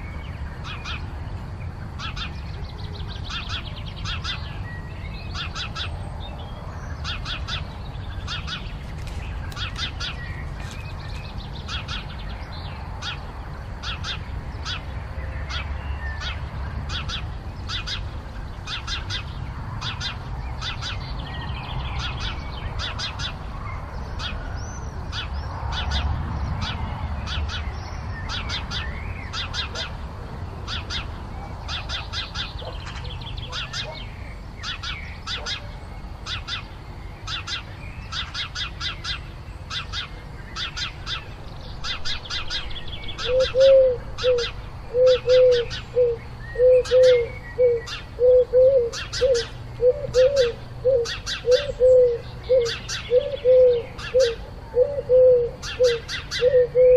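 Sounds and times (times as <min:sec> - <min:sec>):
small birds chirping: 0:00.0 - 0:56.9
dove cooing: 0:43.2 - 0:56.9.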